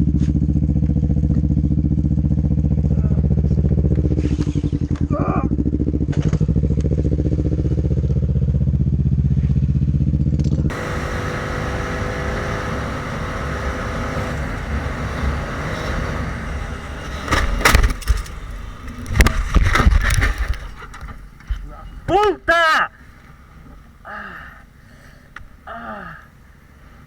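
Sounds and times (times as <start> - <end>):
motorcycle engine running: 0.0 - 4.2, 10.7 - 21.6
motorcycle crashing and scraping: 10.7 - 22.1.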